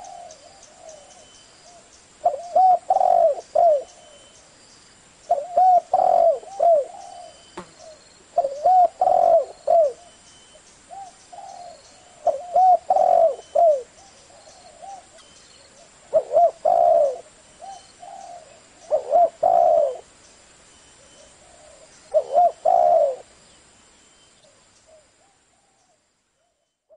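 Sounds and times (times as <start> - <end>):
dove cooing: 0.0 - 4.2, 5.3 - 10.2, 10.9 - 20.1, 21.0 - 23.3
faint dove coos: 0.0 - 4.4, 5.3 - 10.2, 10.9 - 20.1, 21.0 - 23.3, 24.4 - 26.9.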